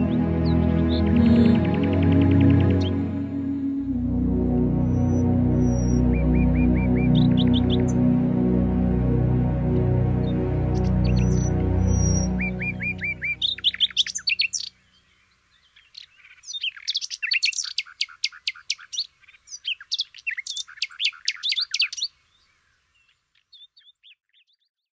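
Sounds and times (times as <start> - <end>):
new-age music: 0.0 - 14.7
bird chirping: 0.0 - 24.9.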